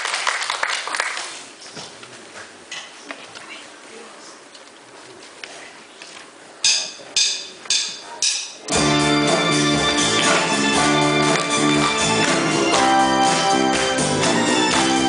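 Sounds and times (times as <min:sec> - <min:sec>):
sharp count-in strikes: 0:06.6 - 0:15.0
live rock band playing: 0:08.7 - 0:15.0.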